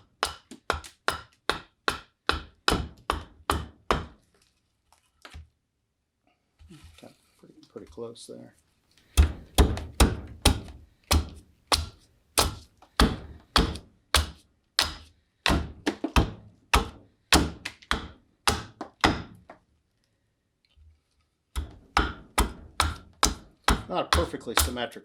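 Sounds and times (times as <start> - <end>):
tool chopping wood: 0.0 - 4.2, 9.1 - 19.5, 21.6 - 24.8.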